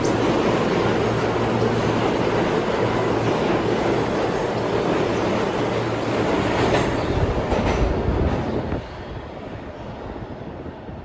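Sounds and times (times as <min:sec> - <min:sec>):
subway train wheels clacking: 0:00.0 - 0:11.0
train rumble: 0:00.0 - 0:11.0.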